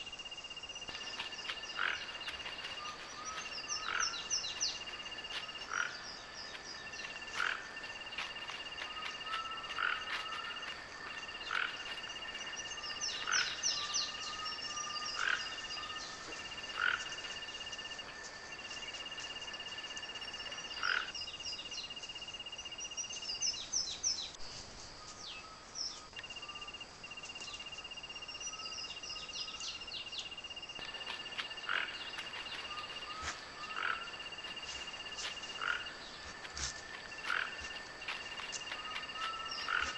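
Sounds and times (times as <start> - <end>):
frogs trilling: 0.0 - 22.8, 26.2 - 39.9
short repeated frog calls: 0.8 - 21.1, 30.8 - 39.9.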